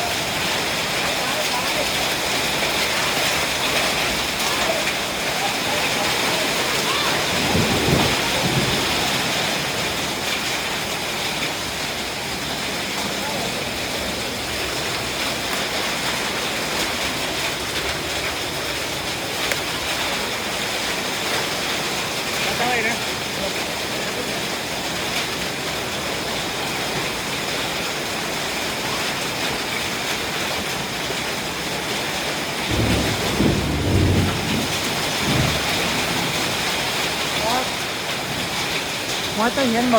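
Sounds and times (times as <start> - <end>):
heavy rain and hail: 0.0 - 39.9
low rumble of thunder: 1.8 - 19.3, 32.6 - 38.7.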